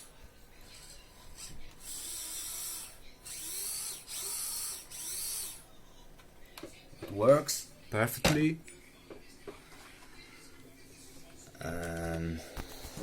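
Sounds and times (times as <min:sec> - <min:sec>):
small electric motor whining: 0:01.4 - 0:05.6.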